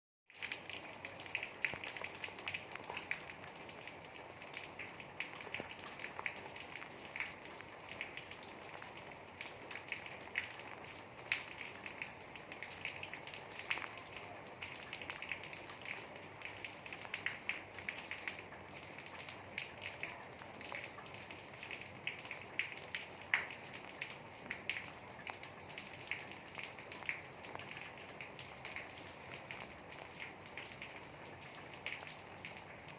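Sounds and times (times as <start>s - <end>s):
raindrops ticking: 0.3s - 32.9s.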